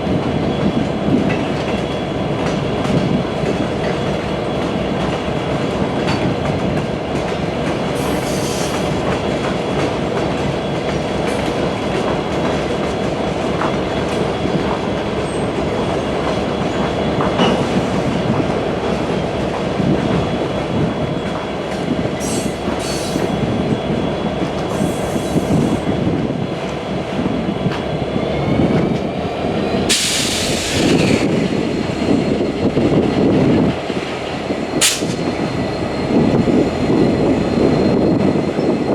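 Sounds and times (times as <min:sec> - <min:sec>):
high-pitched wheel squeal: 0:22.2 - 0:23.4
train wheels clicking over rails: 0:29.7 - 0:38.7.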